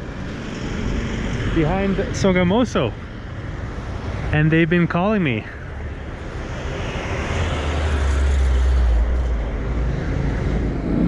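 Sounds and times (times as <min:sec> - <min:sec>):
road noise: 0:00.0 - 0:11.0
vehicle engine rumble passing: 0:00.0 - 0:11.0.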